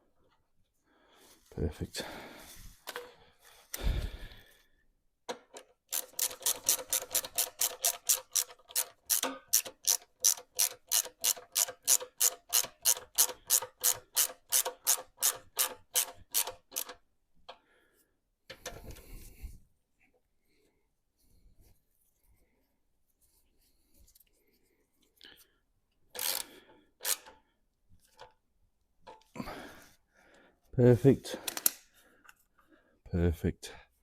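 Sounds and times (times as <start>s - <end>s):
socket ratchet clicking: 5.6s - 17.0s, 26.2s - 27.4s.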